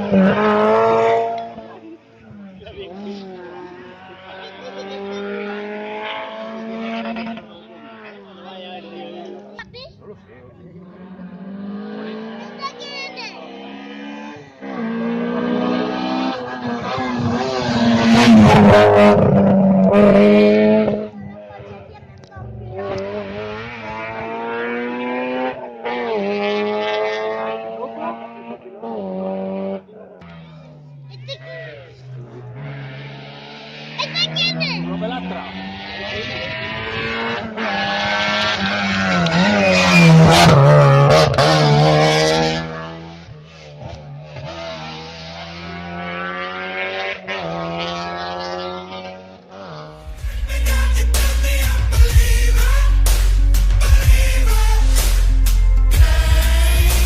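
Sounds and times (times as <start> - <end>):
rally car engine revving: 0.0 - 57.0
exhaust crackling: 49.9 - 57.0.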